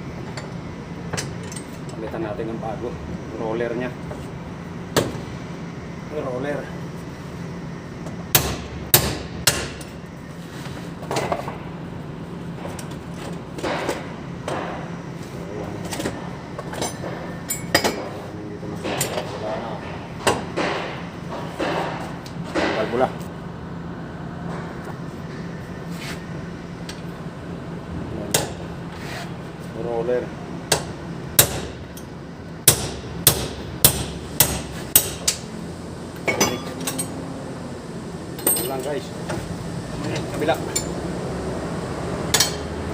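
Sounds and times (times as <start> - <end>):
hammer striking metal: 8.3 - 9.9, 30.7 - 31.8, 32.6 - 35.4, 36.3 - 37.2, 42.3 - 42.7.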